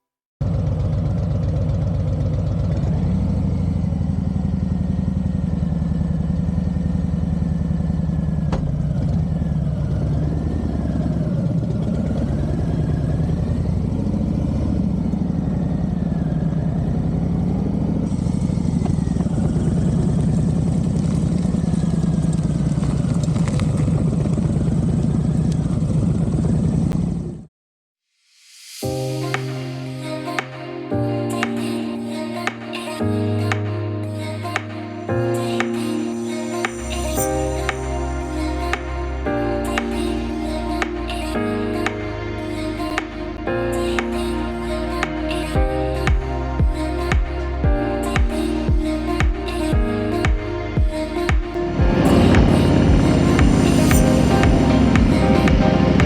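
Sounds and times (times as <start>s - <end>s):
motorcycle engine pulsing beat: 45.6s - 56.0s.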